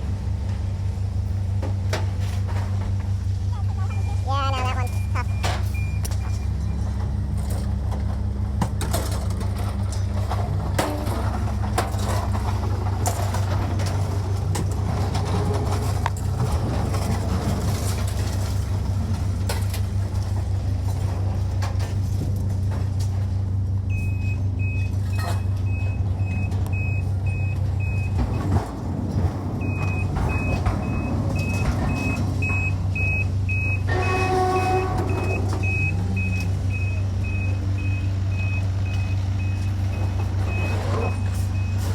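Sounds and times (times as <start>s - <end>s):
heavy vehicle engine running: 0.0s - 41.9s
reversing alarm beeping: 3.7s - 6.9s, 23.9s - 28.7s, 29.5s - 41.9s
knocks and clanks: 5.2s - 23.4s, 25.0s - 41.9s
short horn-like tone: 33.9s - 35.8s.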